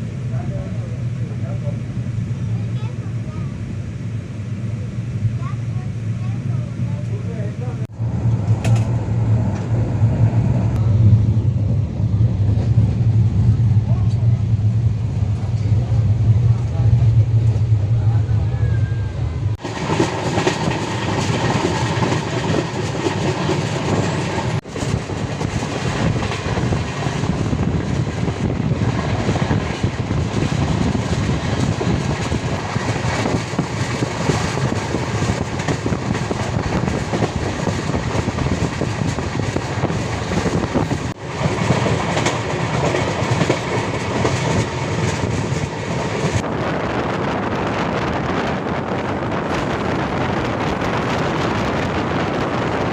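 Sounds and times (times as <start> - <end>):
train wheels rumbling on rails: 5.3 - 52.9.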